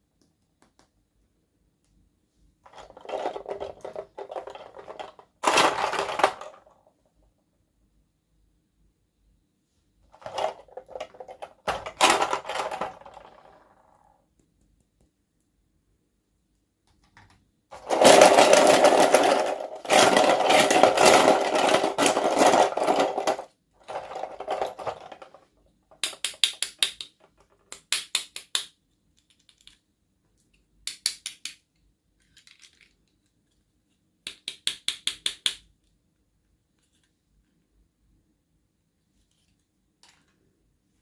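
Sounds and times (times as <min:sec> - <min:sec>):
plastic packaging clicking and rattling: 0:10.2 - 0:13.3, 0:17.8 - 0:25.4, 0:32.2 - 0:33.3.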